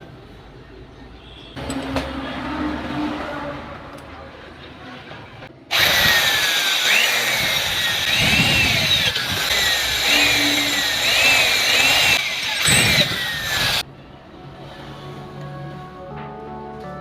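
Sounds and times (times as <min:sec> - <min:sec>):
power tool motor running: 0:05.7 - 0:13.8
quiet music: 0:13.8 - 0:17.0.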